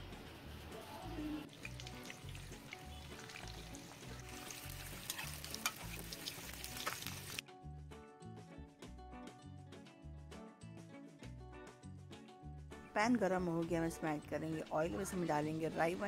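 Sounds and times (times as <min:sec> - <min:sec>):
food sizzling and crackling: 0:00.1 - 0:07.4.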